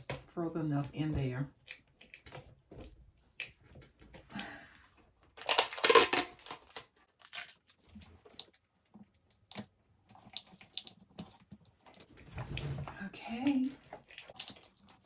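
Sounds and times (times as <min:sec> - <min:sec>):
packaging rustling and crinkling: 0:05.4 - 0:08.6.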